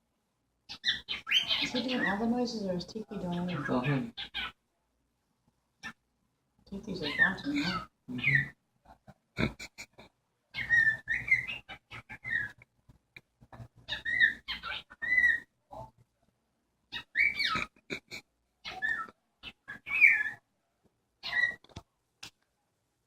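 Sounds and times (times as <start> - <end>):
cockatiel chirping and whistling: 10.6 - 12.6, 13.9 - 15.4, 18.7 - 19.1, 19.7 - 20.4, 21.2 - 21.6.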